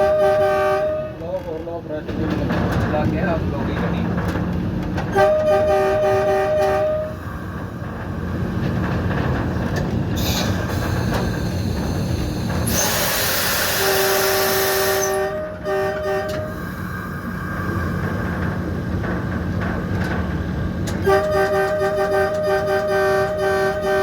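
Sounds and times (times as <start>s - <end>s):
locomotive horn blasts: 0.0s - 1.3s, 5.1s - 7.2s, 13.7s - 16.6s, 21.0s - 24.0s
train rumble: 0.0s - 24.0s
loud air hiss: 10.2s - 15.1s.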